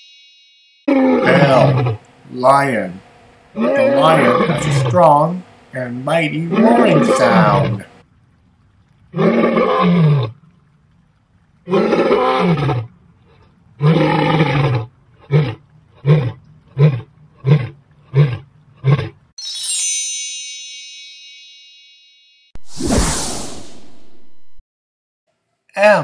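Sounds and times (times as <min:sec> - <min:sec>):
bright chime ringing: 0:00.0 - 0:01.7, 0:19.4 - 0:22.5
lion roaring: 0:00.9 - 0:08.0, 0:09.1 - 0:10.4, 0:11.6 - 0:19.2.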